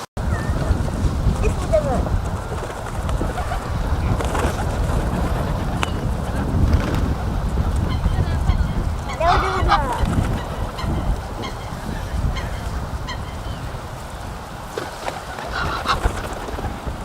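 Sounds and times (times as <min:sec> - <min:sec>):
wind rumble on microphone: 0:00.0 - 0:17.0
goose honking: 0:07.9 - 0:11.8.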